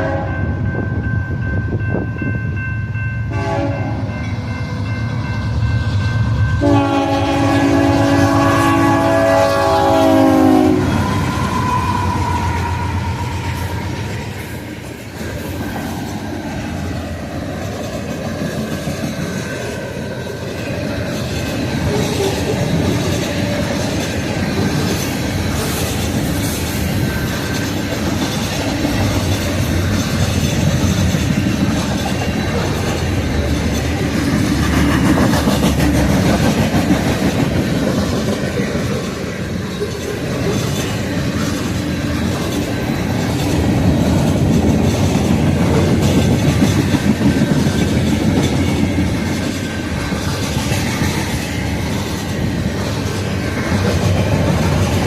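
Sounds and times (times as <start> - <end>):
locomotive horn: 0.0 - 0.4, 3.3 - 4.1, 6.6 - 13.3
train cars rumbling past: 0.0 - 55.0
wheels clacking over rail joints: 13.6 - 55.0.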